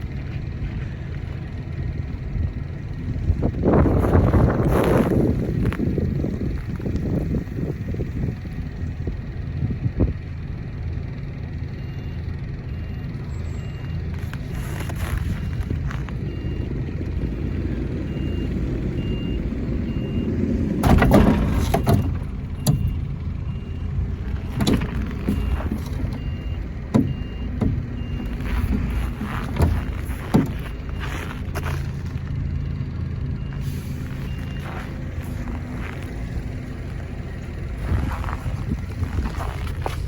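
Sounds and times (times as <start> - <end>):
truck engine running: 0.0 - 40.0
sharp knocks: 26.9 - 28.0, 28.6 - 30.8.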